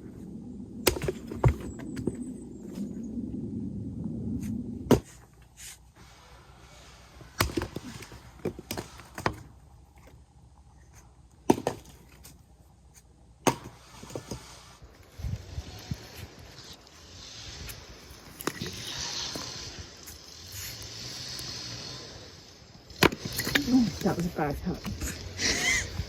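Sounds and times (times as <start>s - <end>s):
low rumble: 0.0s - 6.6s
axe chopping firewood: 0.8s - 2.1s, 7.2s - 10.2s, 11.4s - 12.4s, 13.4s - 14.4s, 22.9s - 24.2s.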